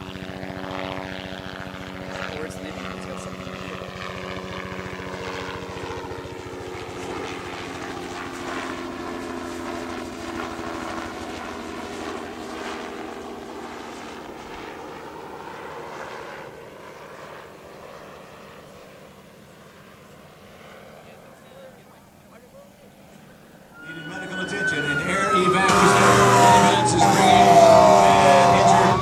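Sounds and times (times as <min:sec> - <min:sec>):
helicopter rotor chop: 0:23.8 - 0:29.0
turbine hum: 0:23.8 - 0:29.0.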